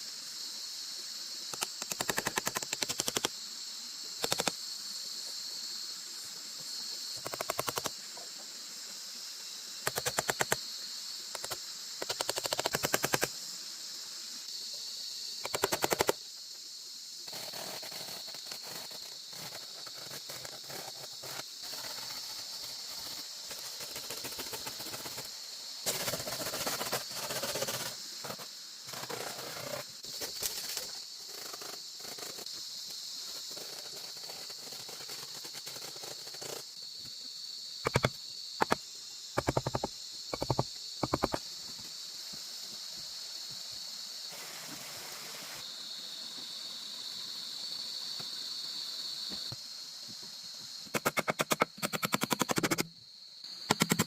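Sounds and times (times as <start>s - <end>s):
high insect drone: 0.0s - 54.0s.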